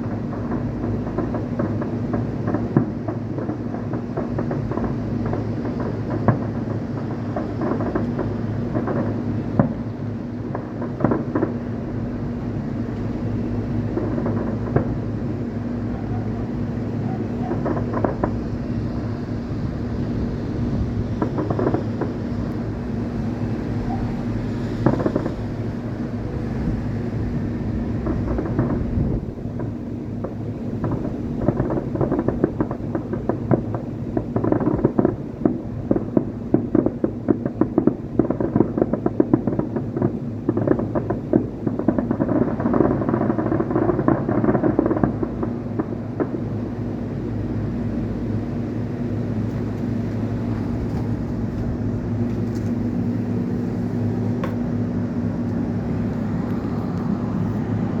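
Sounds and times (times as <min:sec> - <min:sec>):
fireworks crackling: 0:00.0 - 0:48.1, 0:48.9 - 0:58.0
low hum: 0:49.2 - 0:58.0.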